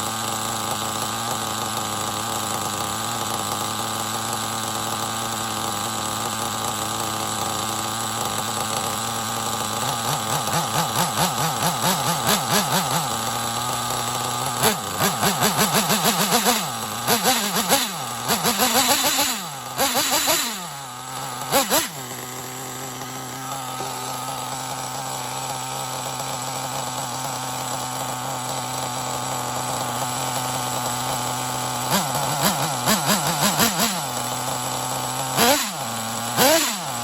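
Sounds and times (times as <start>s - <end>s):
nitro engine idling and revving: 0.0s - 37.0s.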